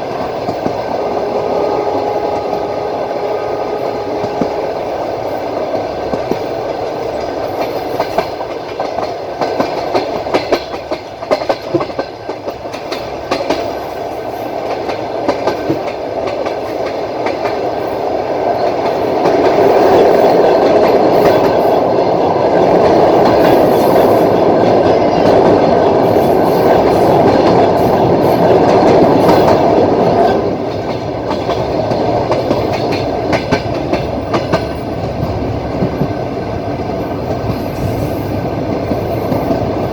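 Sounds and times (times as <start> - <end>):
train rumble: 0.0 - 39.9
train wheels clacking on rail joints: 0.0 - 39.9.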